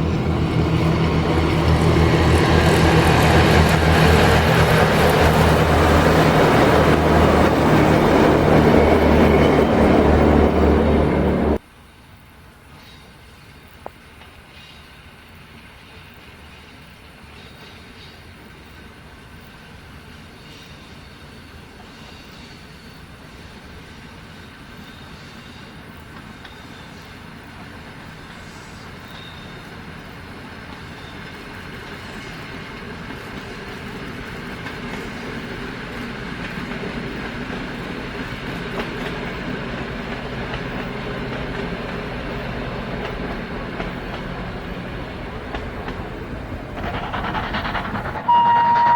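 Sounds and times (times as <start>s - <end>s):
rail clatter: 0.0s - 11.6s, 32.7s - 48.9s
train running noise: 0.0s - 48.9s.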